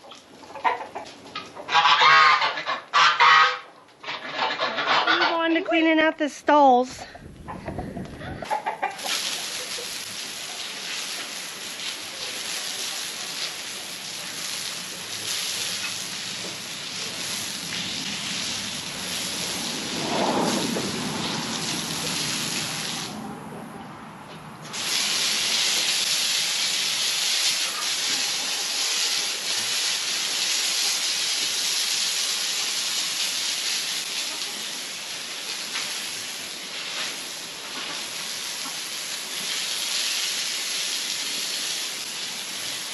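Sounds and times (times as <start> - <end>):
water spraying from hose: 8.4 - 23.2, 24.6 - 42.9.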